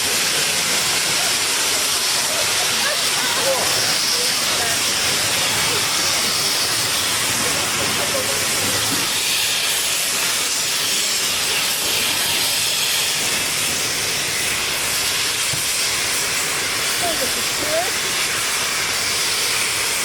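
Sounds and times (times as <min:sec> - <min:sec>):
steam locomotive hissing steam: 0:00.0 - 0:20.0.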